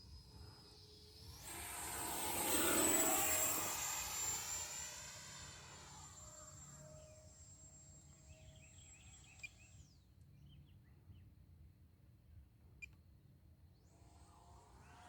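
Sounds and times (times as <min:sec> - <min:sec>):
distant rc jet fan whine: 0:00.0 - 0:10.2, 0:13.8 - 0:15.0.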